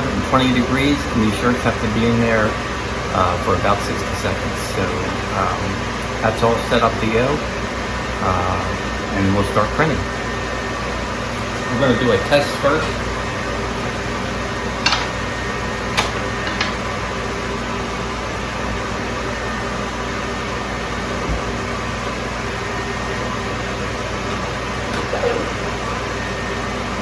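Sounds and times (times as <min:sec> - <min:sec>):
dryer fan and motor hum: 0:00.0 - 0:27.0.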